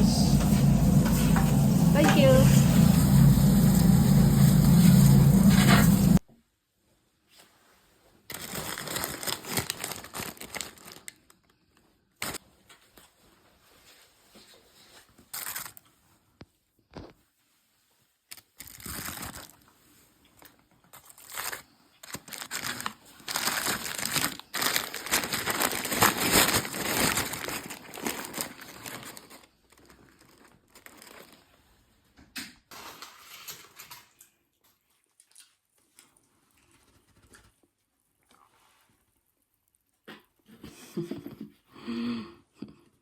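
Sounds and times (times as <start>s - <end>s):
food packaging crinkling: 8.3s - 12.4s, 15.2s - 16.1s, 18.3s - 31.8s.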